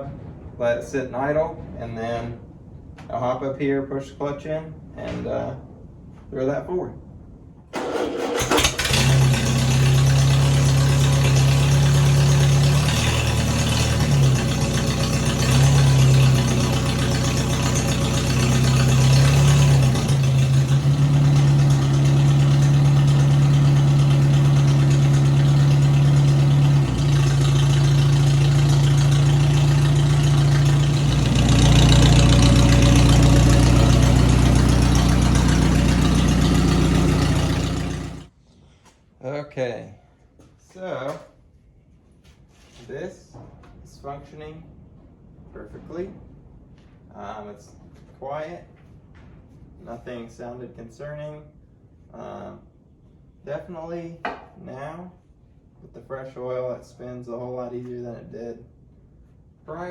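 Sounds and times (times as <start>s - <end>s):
tractor engine idling: 7.8s - 38.3s.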